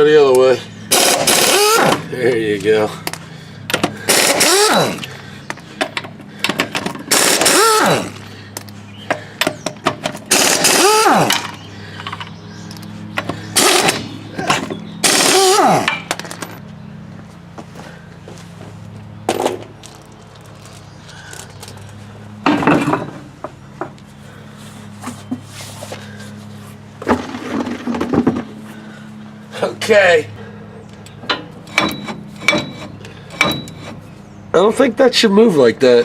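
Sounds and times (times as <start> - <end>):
steady low hum: 0.0 - 35.4
lug nuts being turned: 0.9 - 16.7, 31.0 - 34.1
squealing metal creaks: 31.3 - 34.1.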